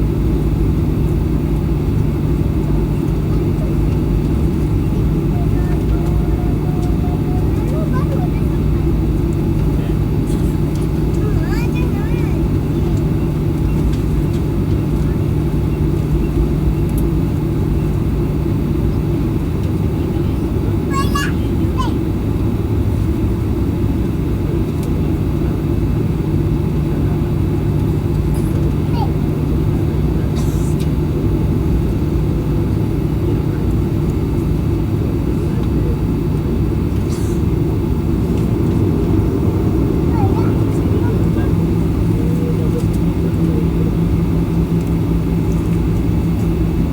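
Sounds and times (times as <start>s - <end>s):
jet engine cabin drone: 0.0s - 46.9s.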